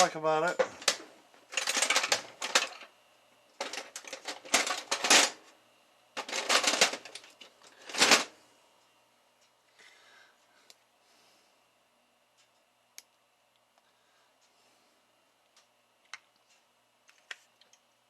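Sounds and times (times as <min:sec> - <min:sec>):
metal parts clattering: 0:00.5 - 0:02.9, 0:03.6 - 0:05.4, 0:06.2 - 0:08.3.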